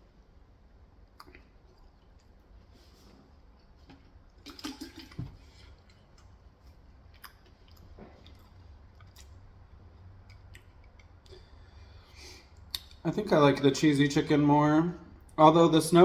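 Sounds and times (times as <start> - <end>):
low steady hum: 0.0 - 16.0
chewing and wet mouth sounds: 1.0 - 13.0.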